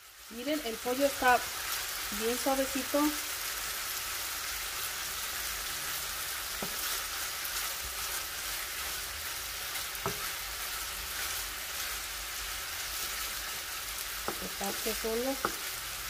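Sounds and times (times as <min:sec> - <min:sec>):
chicken sizzling in hot oil: 0:00.0 - 0:16.0
spatula knocking against pan: 0:14.2 - 0:14.5.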